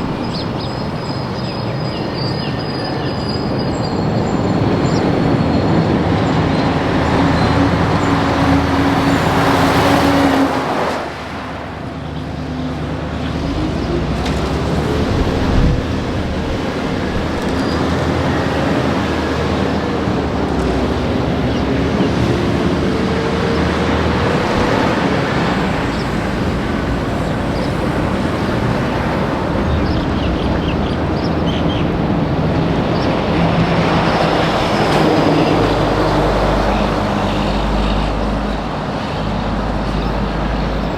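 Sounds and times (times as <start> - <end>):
truck engine shifting gears: 0.0 - 40.9
truck passing close: 0.0 - 40.9.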